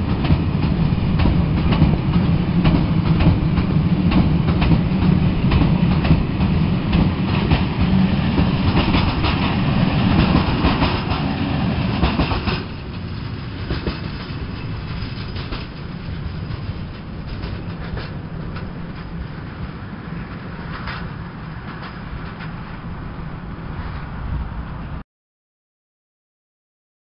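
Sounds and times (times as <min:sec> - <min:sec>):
train wheels clicking on rails: 0:00.0 - 0:23.0.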